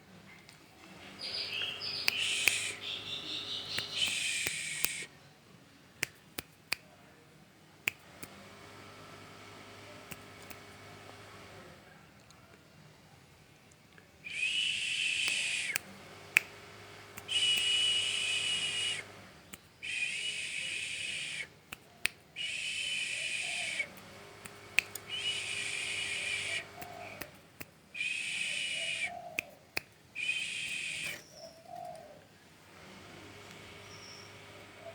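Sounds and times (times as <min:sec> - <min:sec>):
songbird buzzing calls: 0:01.0 - 0:05.1, 0:14.3 - 0:19.2, 0:19.8 - 0:21.5, 0:22.4 - 0:27.4, 0:28.0 - 0:29.5, 0:30.2 - 0:32.2, 0:33.5 - 0:34.9.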